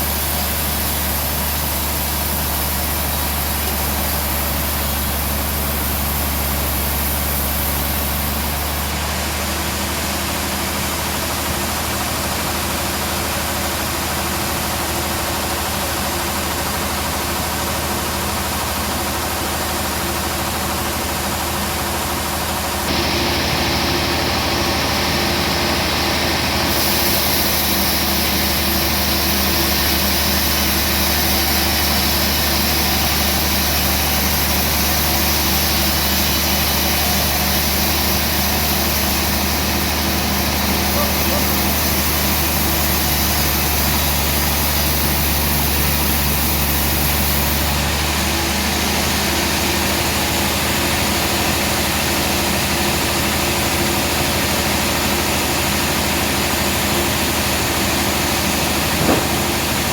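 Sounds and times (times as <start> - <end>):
sawmill machinery running: 0.0 - 59.9.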